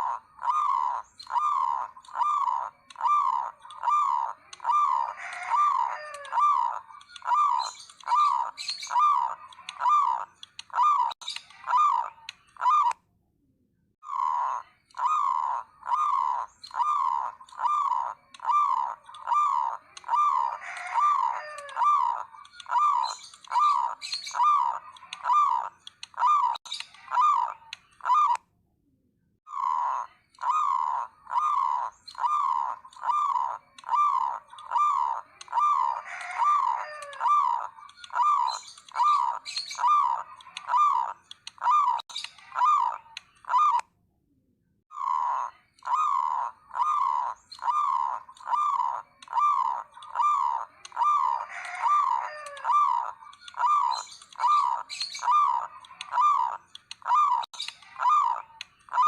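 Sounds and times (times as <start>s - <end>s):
doves cooing: 0.0s - 13.0s, 14.0s - 28.4s, 29.5s - 43.8s, 44.9s - 59.0s
faint higher bird calls: 14.0s - 28.4s, 44.9s - 59.0s.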